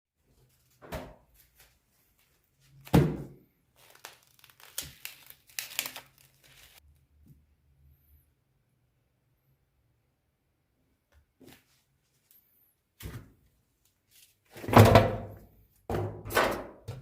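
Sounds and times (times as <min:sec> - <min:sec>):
crinkling and tearing: 0:03.7 - 0:06.8.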